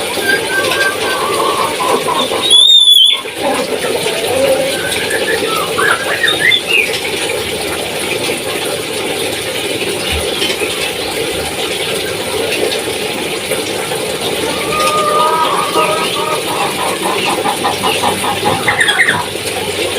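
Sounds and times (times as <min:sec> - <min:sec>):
steady background noise: 0:00.0 - 0:19.9
parrot squeaky calls: 0:00.2 - 0:04.9.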